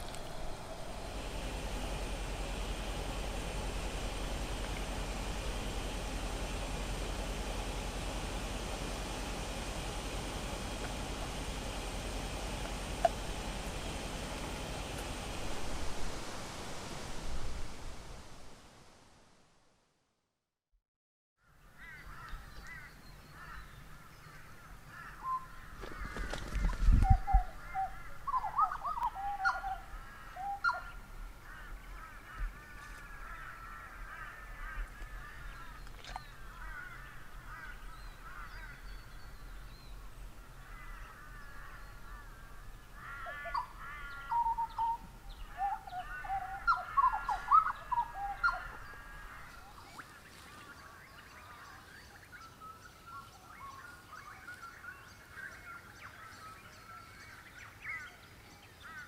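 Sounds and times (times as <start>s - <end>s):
loud low rumble: 0.0s - 19.0s
birds warbling calls: 21.8s - 59.0s.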